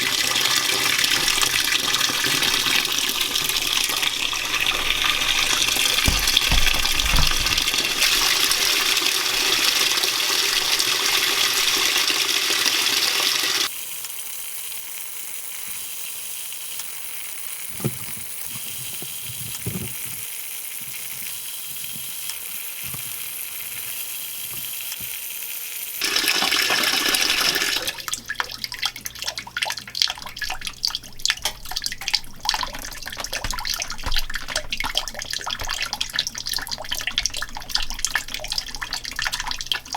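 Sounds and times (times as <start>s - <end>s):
water pouring into washing machine: 0.0s - 13.8s, 26.0s - 39.9s
water splashing: 0.7s - 13.7s, 27.4s - 39.9s
faint knocks: 3.3s - 8.1s.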